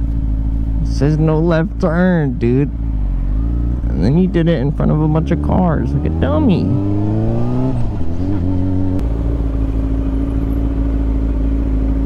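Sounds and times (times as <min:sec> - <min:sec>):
motorcycle engine idling: 0:00.0 - 0:05.2, 0:07.8 - 0:12.0.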